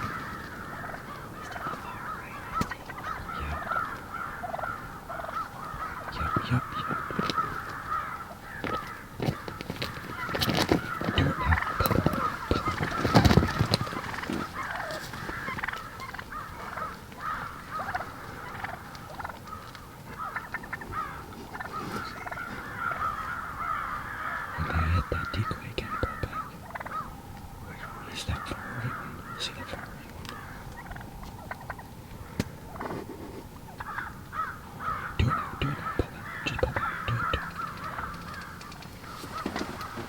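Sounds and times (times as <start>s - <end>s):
wild turkeys calling: 0.0s - 40.0s.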